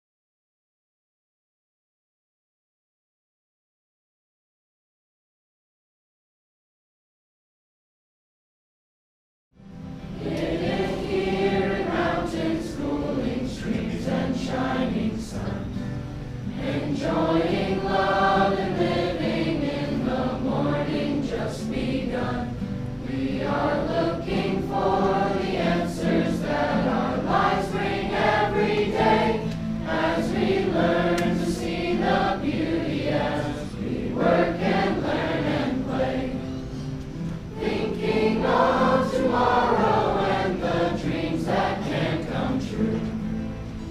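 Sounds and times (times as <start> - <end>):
group singing in harmony: 10.2 - 43.7.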